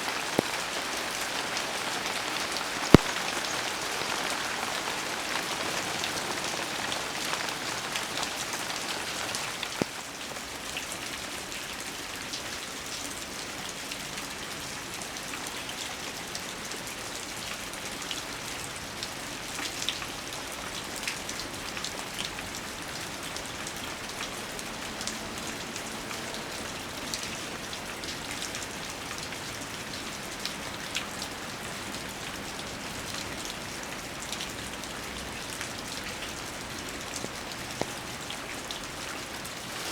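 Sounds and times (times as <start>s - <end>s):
raindrops ticking: 0.0s - 10.0s, 33.4s - 39.9s
steady rain falling: 0.0s - 39.9s.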